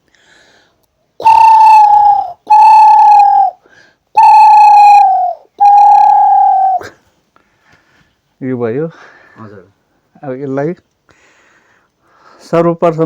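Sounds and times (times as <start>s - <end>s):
man whistling dove hoots: 1.2s - 3.6s, 4.2s - 7.0s.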